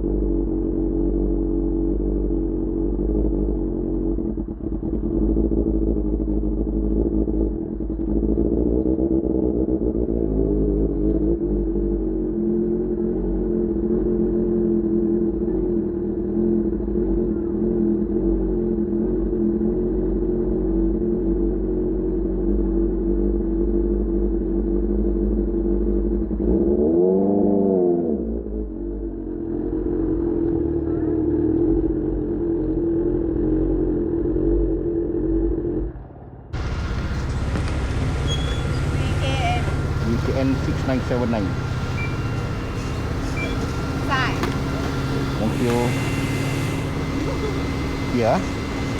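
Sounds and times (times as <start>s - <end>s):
motorcycle engine running: 0.0s - 26.8s, 28.3s - 48.9s
engine throttle blip: 36.6s - 48.9s.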